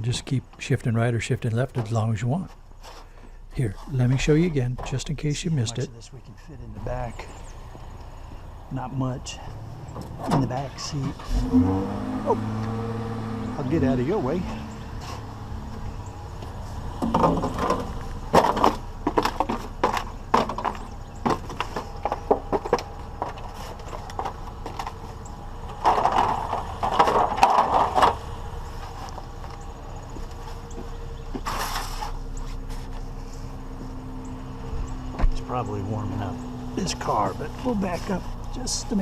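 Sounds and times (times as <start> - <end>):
vehicle engine idling: 0.0 - 39.0
scrap metal knocks and rattles: 16.9 - 33.1.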